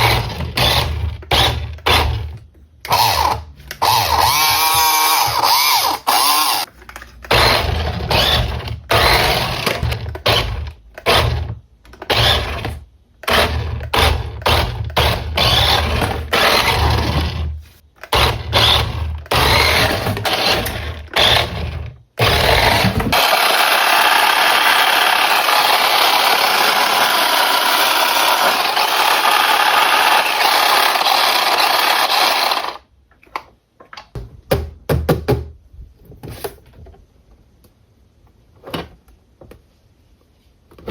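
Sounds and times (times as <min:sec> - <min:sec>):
small electric motor humming: 0:03.9 - 0:06.7.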